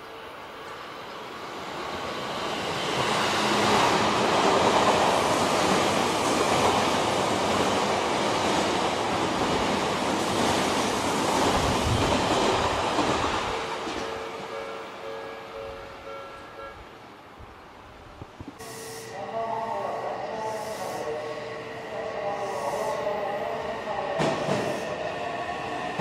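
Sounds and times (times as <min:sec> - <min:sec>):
train passing at speed: 0:00.0 - 0:26.0.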